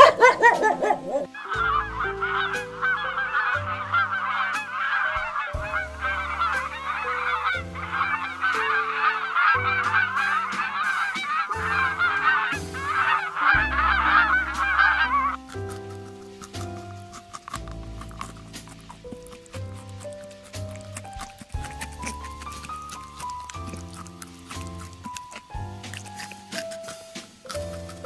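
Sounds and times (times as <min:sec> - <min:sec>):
flock of waterfowl honking: 0:00.0 - 0:15.4
background music of low notes: 0:00.0 - 0:28.0.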